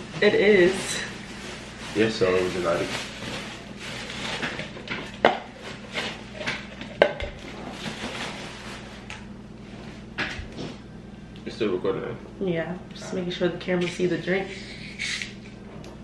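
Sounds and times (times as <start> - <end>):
cups and bottles rustling and clattering: 0.0 - 9.2.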